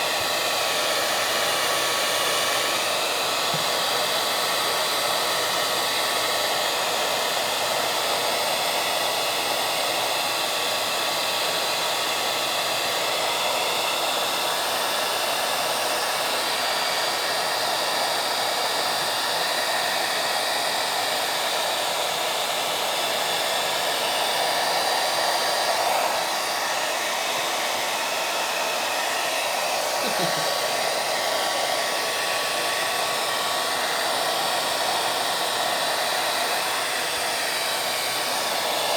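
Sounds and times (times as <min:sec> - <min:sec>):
blower rushing noise: 0:21.6 - 0:38.9.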